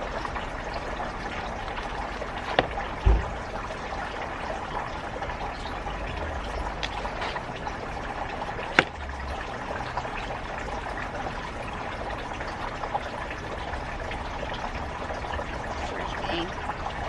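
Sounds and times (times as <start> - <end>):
trickle of running water: 0.0 - 17.0.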